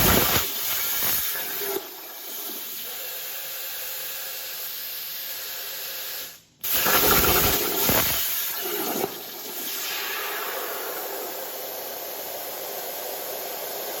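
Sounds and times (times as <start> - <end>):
plasma cutter hissing: 0.0 - 1.7, 6.6 - 14.0.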